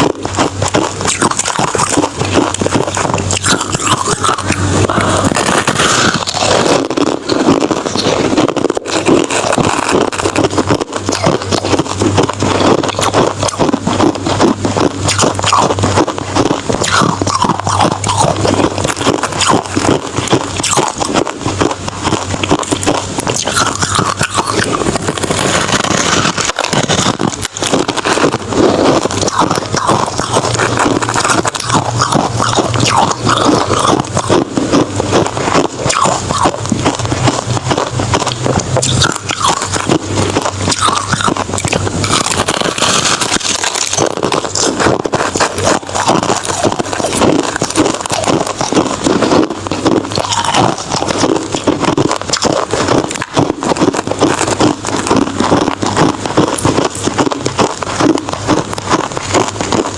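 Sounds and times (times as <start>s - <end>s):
crushed ice being chewed: 0.0s - 59.9s.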